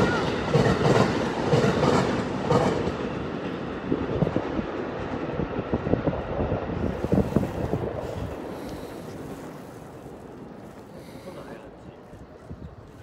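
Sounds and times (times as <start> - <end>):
train wheels clacking over rail joints: 0.0 - 5.4
electric train running on tracks: 0.0 - 13.0.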